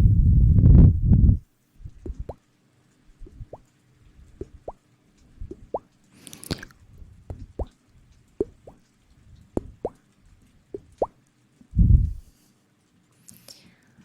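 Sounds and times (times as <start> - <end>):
small wet plops: 4.3 - 4.8, 5.4 - 7.8, 8.4 - 8.9, 9.5 - 10.0, 10.7 - 11.2.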